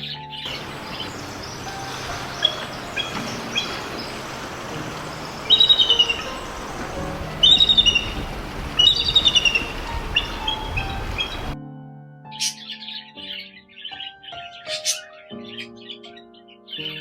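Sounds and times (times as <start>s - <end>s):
bird chirping: 0.0s - 11.6s
bird trills: 0.0s - 11.6s, 12.3s - 17.0s.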